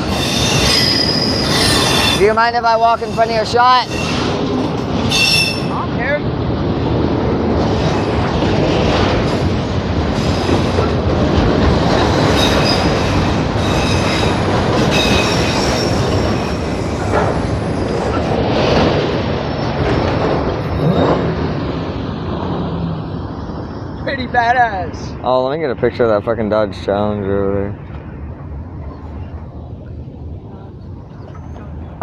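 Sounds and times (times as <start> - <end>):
high wheel squeal: 0.0 - 5.9, 12.2 - 18.2
train wheels rumbling on rail: 0.0 - 32.0.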